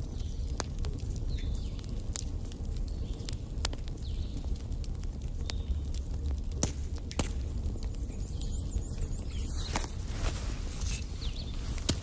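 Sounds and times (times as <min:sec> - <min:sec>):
fire flames rumbling: 0:00.0 - 0:12.0
fire pops and cracks: 0:00.0 - 0:12.0.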